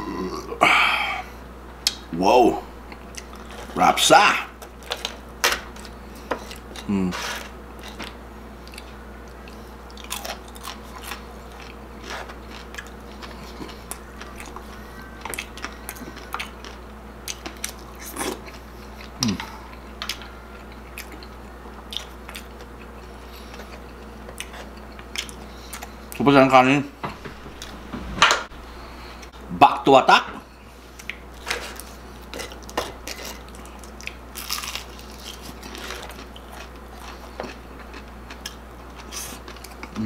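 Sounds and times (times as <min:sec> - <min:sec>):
crunchy chewing: 0:04.6 - 0:26.2, 0:30.9 - 0:40.0.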